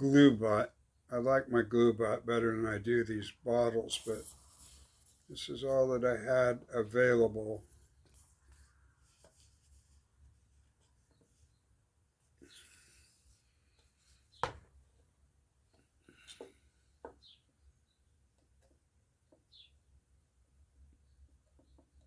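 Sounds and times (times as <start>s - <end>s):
rustle: 4.0s - 5.3s.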